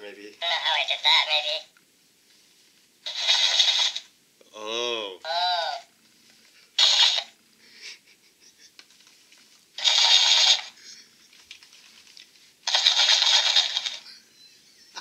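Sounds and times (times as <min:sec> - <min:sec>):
crackly toy speaker bursts: 0:03.0 - 0:04.1, 0:06.8 - 0:07.4, 0:09.8 - 0:10.8, 0:12.6 - 0:14.1.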